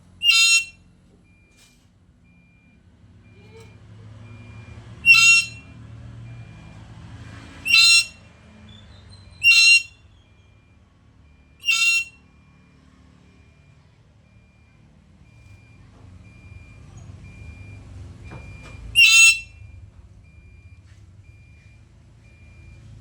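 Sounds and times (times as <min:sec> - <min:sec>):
parrot loud short calls: 0:00.2 - 0:00.7, 0:05.1 - 0:05.6, 0:07.7 - 0:08.1, 0:09.4 - 0:09.9, 0:11.6 - 0:12.1.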